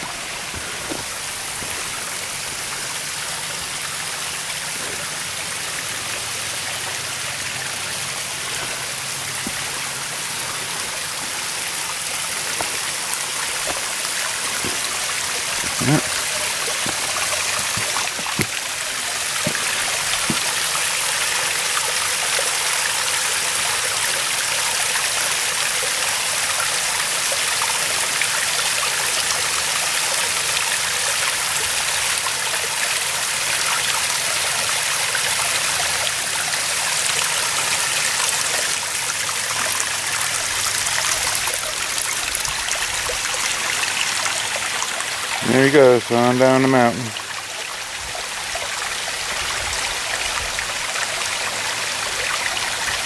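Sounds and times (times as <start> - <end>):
waterfall splashing and rushing: 0.0 - 53.0
faint knocks: 14.5 - 18.6.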